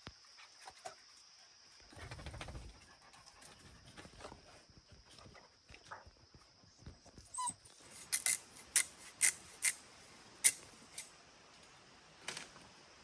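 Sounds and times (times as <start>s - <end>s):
brief squeak: 7.3s - 9.8s
sharp irregular clicks: 8.0s - 9.8s, 10.5s - 11.1s.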